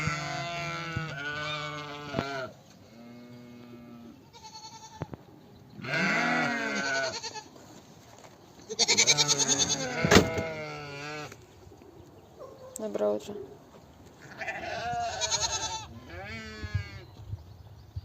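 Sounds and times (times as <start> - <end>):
livestock bleating: 0.0 - 5.2, 5.8 - 7.5, 8.7 - 11.4, 14.2 - 17.0.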